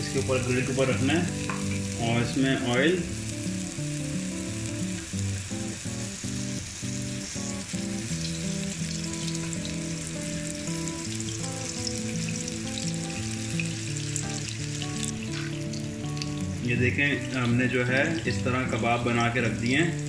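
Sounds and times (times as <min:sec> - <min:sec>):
background music with held notes: 0:00.0 - 0:20.0
burger patty sizzling on a grill: 0:00.0 - 0:20.0
oil being drizzled: 0:00.0 - 0:20.0.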